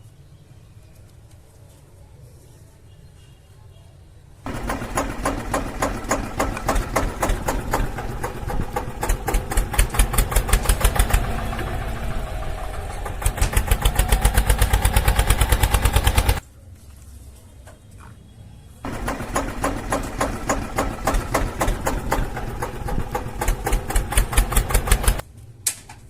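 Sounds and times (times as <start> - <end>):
engine chugging: 4.5 - 16.4, 18.9 - 25.2.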